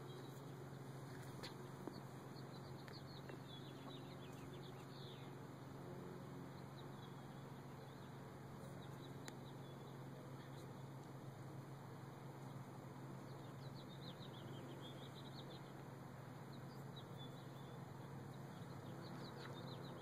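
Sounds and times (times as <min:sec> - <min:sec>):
steady low hum: 0:00.0 - 0:20.0
faint bird chirps: 0:16.5 - 0:20.0.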